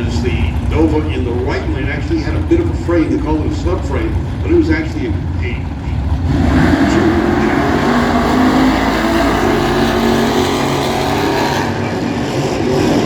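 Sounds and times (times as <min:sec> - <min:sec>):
drag car engines running loud: 0:00.0 - 0:13.0.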